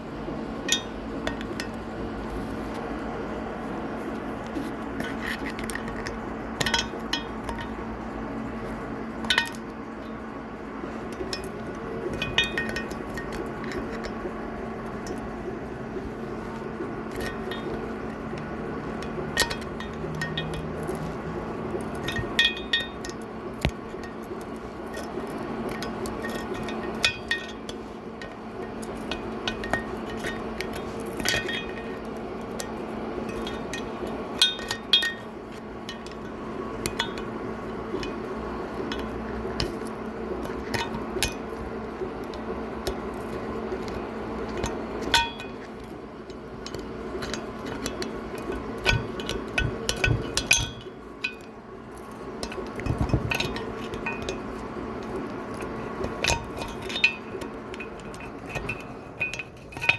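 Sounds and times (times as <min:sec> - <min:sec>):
steady hum: 0:00.0 - 0:59.9
hand tools clinking on metal: 0:17.0 - 0:59.9.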